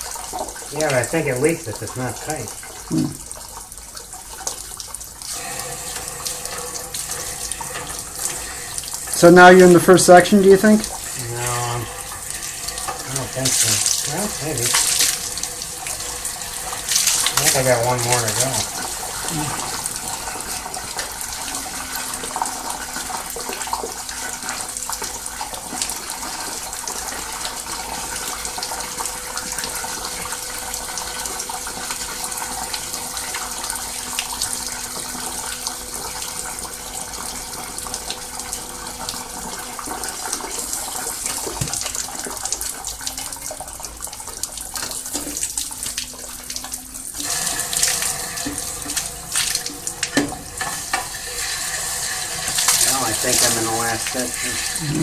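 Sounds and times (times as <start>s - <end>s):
hose water rushing and splashing: 0.0s - 55.0s.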